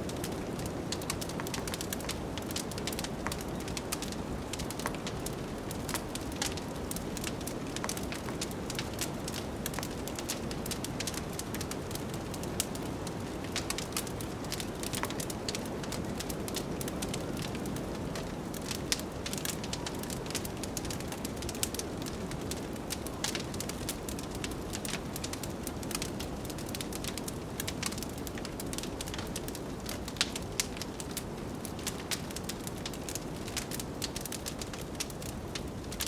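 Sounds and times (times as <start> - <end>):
wood fire crackling and popping: 0.0 - 36.0.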